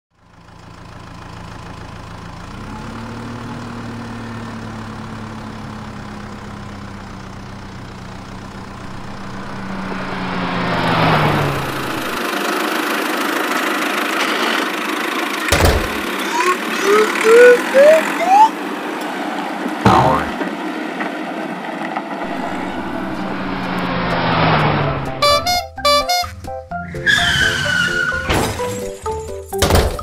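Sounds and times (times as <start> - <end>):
vehicle engine running: 0.2 - 16.8, 22.2 - 26.4.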